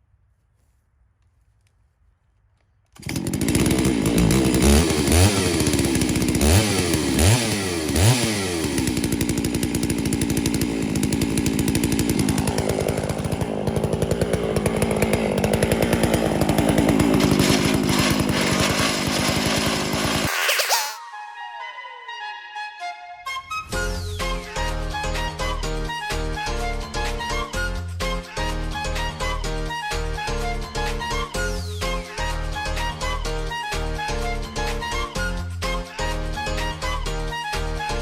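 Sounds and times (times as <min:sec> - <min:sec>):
chainsaw cutting wood: 0:02.9 - 0:21.0, 0:26.1 - 0:37.0.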